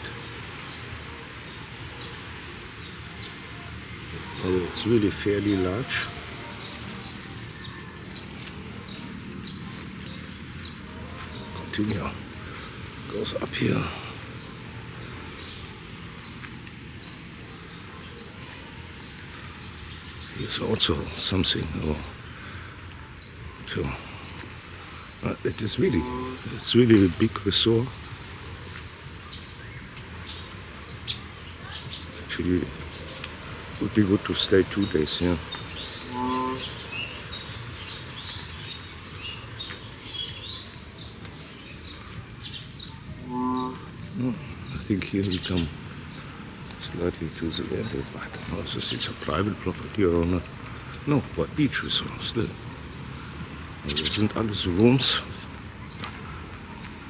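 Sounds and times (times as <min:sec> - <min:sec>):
low background noise: 0:00.0 - 0:57.0
outdoor background noise: 0:00.0 - 0:57.0
small birds chirping: 0:00.0 - 0:57.0
high bird chirps: 0:32.8 - 0:40.7.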